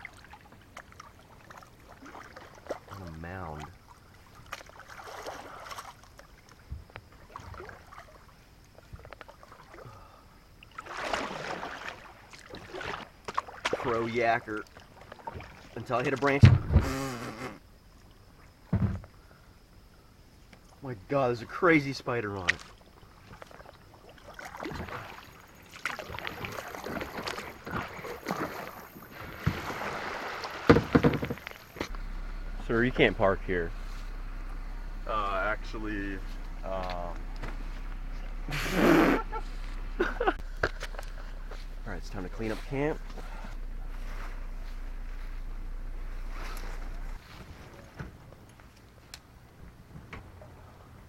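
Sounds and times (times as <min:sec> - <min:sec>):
kayak paddle dipping in water: 0:00.0 - 0:16.7, 0:22.4 - 0:32.0, 0:36.7 - 0:45.4
paddle splashing: 0:00.0 - 0:17.0, 0:22.4 - 0:32.0, 0:35.1 - 0:49.0.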